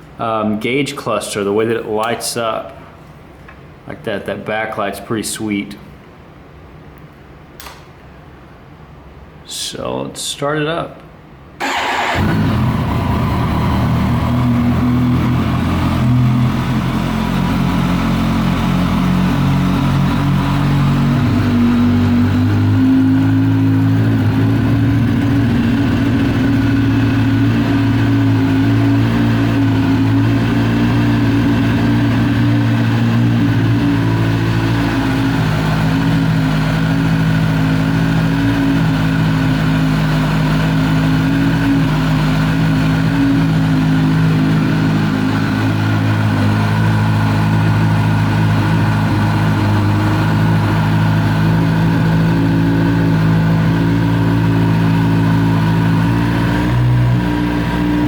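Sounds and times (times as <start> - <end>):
motorcycle engine idling: 11.6 - 58.0.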